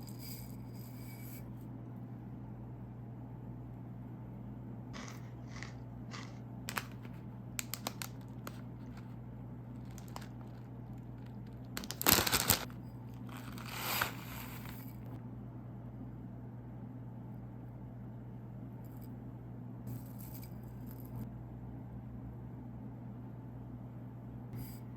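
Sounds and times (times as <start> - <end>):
plastic packet crinkling: 6.1 - 9.1, 9.8 - 14.7.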